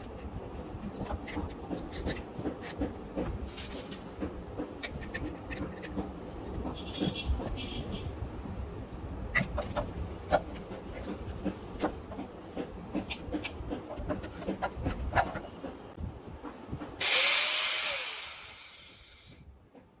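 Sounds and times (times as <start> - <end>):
angle grinder whining: 17.0 - 19.3.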